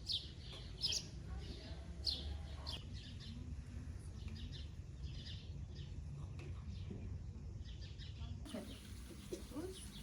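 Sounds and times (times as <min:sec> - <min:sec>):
small birds chirping: 0:00.0 - 0:03.5, 0:04.1 - 0:10.0.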